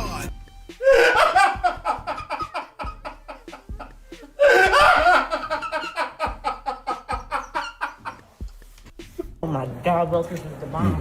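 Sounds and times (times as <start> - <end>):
hearty laughter: 0.8 - 8.4.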